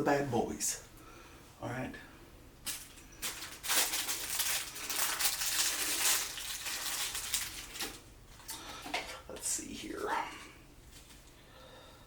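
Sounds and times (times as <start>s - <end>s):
plastic packaging crinkling: 2.7s - 9.2s.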